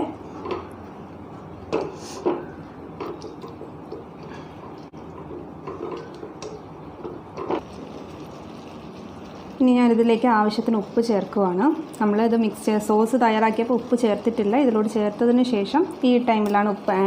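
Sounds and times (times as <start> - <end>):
sauce bubbling in a pan: 5.0 - 16.2.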